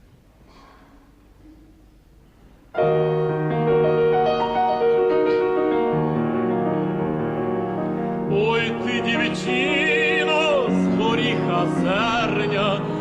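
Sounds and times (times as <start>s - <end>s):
faint recording hiss: 0.0s - 13.0s
piano playing chords and melody: 2.8s - 13.0s.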